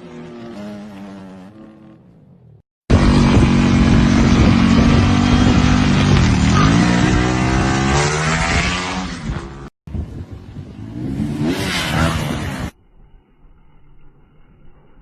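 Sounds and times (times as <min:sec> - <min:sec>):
dirt bike engine revving: 0:00.0 - 0:09.7, 0:10.8 - 0:12.7.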